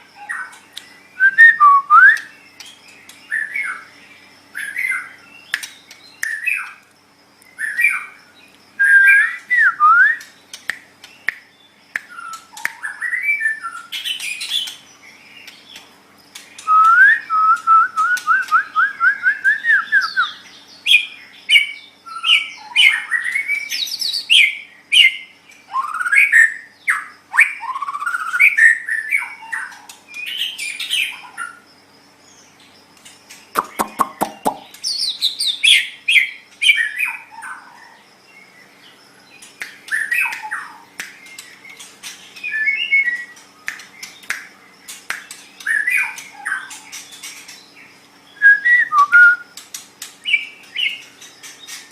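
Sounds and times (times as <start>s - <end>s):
songbird singing whistled phrases: 0.2s - 3.9s, 4.6s - 6.8s, 8.8s - 15.4s, 16.6s - 31.6s, 39.6s - 41.6s, 42.4s - 44.5s, 45.1s - 46.8s, 48.3s - 49.6s.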